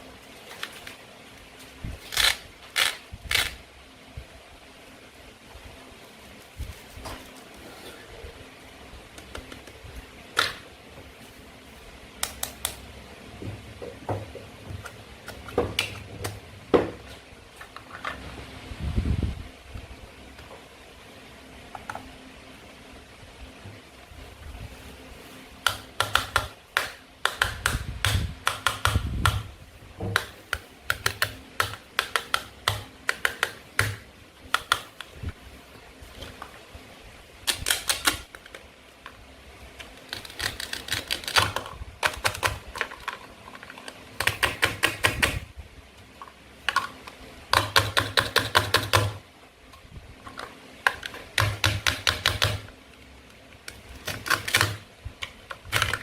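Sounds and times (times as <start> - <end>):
plastic toy food clicking: 30.9 - 35.0, 50.9 - 52.7.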